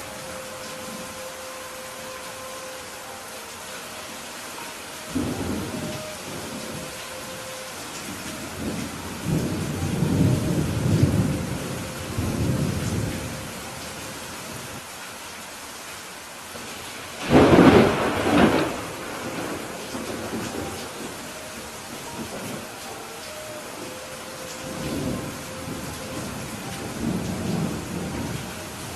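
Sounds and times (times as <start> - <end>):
steady rain: 0.0 - 28.9
rolling thunder rumble: 5.1 - 13.7, 17.2 - 22.8.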